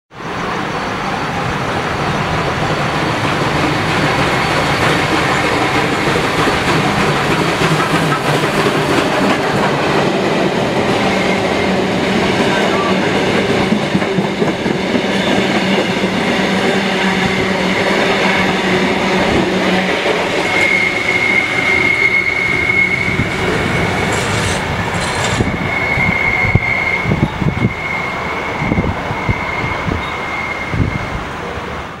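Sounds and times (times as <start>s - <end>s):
train carriages rolling on rails: 0.2s - 31.8s
high-pitched wheel squeal: 20.3s - 31.2s.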